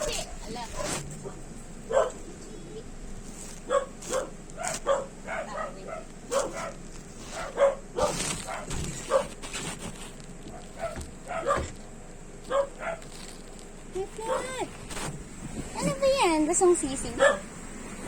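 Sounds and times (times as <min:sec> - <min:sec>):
dog barking and yipping: 0:00.0 - 0:02.3, 0:03.6 - 0:09.4, 0:10.5 - 0:11.8, 0:12.4 - 0:13.2, 0:14.2 - 0:14.7, 0:17.1 - 0:17.5.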